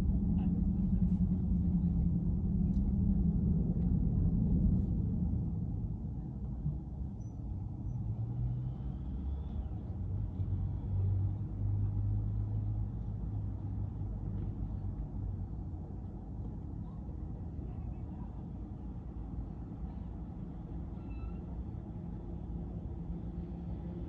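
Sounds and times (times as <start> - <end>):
low hum: 0.0 - 7.8
car engine and road noise: 0.0 - 24.0.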